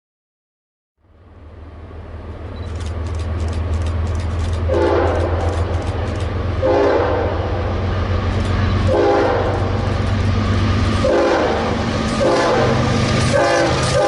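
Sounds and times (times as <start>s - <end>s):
diesel locomotive engine rumble: 1.0s - 14.0s
rail clicks: 2.2s - 14.0s
locomotive air horn: 4.7s - 5.5s, 6.6s - 7.6s, 8.8s - 9.8s, 11.0s - 14.0s.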